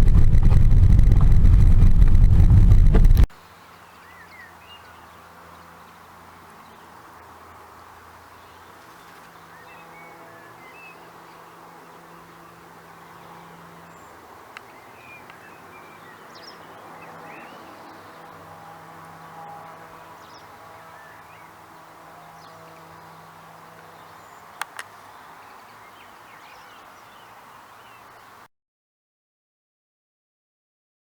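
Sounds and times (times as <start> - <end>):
faint low steady hum: 0.0 - 3.3
road or wind rumble: 0.0 - 3.3
birds chirping: 19.9 - 28.4.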